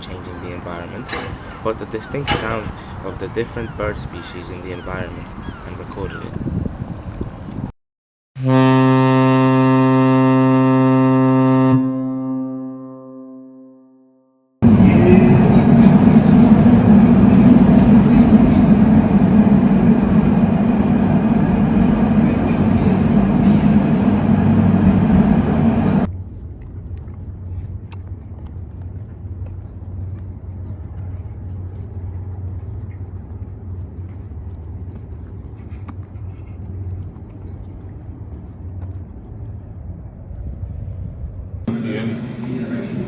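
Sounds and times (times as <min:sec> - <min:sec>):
loud steady rumbling: 0:14.6 - 0:26.1, 0:41.7 - 0:43.0
low hum: 0:14.6 - 0:26.1.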